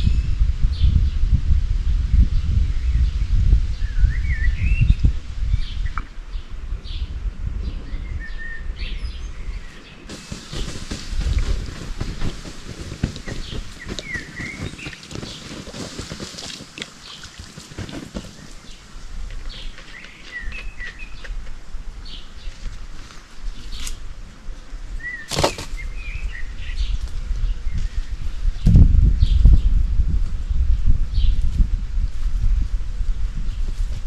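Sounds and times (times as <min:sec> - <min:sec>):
steady low rumble: 0:00.0 - 0:14.8, 0:25.9 - 0:34.0
small birds chirping: 0:03.8 - 0:24.0.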